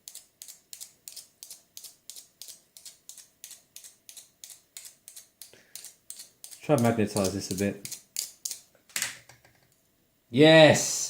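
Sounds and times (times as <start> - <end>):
magnet scraping along steel shaft: 0.1 - 8.6.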